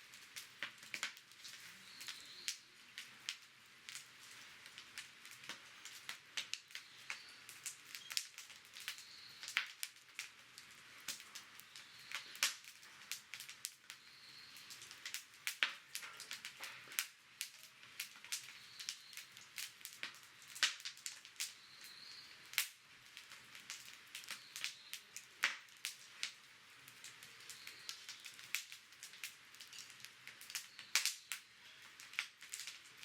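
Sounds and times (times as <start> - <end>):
campfire crackling and popping: 0.0 - 33.0
faint steady hiss: 0.0 - 33.0.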